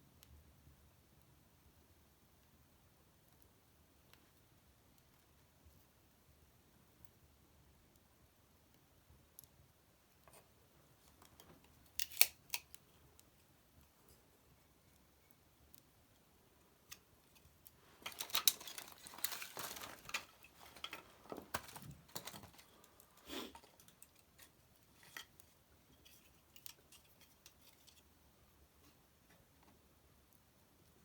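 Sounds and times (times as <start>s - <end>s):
wood fire crackling and popping: 14.6s - 25.5s.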